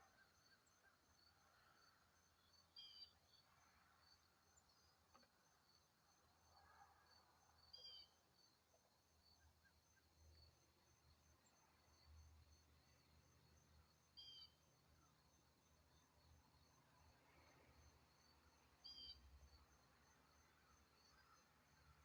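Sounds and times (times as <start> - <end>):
faint high chirping: 18.8 - 19.2.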